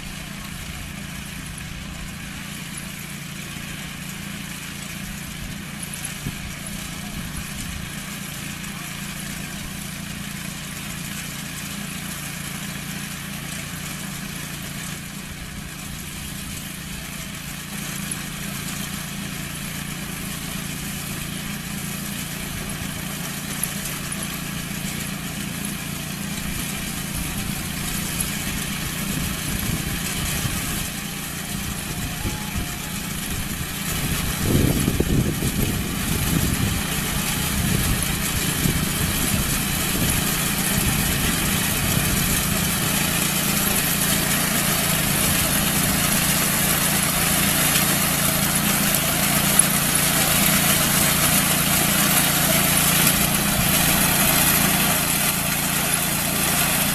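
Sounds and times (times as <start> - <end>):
farm machinery engine humming: 0.0 - 56.9.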